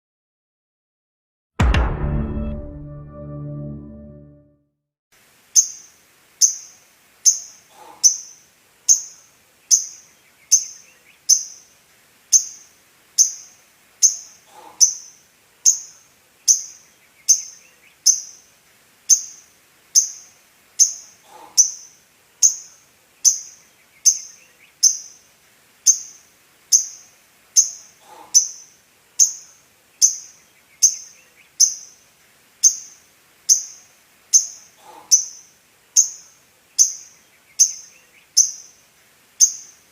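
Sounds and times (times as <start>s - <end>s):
bird chirping: 5.6s - 11.7s, 12.3s - 18.4s, 19.1s - 25.2s, 25.9s - 32.0s, 32.6s - 38.8s, 39.4s - 39.9s.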